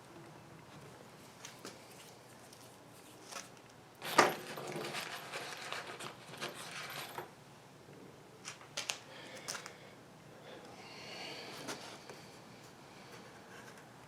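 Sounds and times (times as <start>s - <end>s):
metal hardware clinking: 4.0s - 5.4s.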